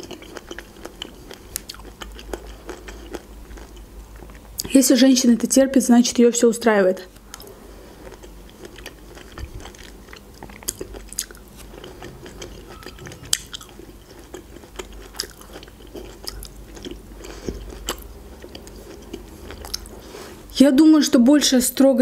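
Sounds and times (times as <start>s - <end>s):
wet chewing mouth clicks: 7.2s - 19.9s.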